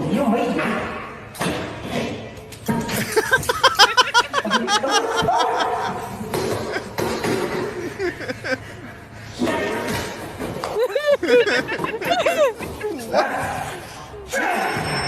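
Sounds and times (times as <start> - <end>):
people laughing: 2.9 - 9.2, 10.4 - 14.0.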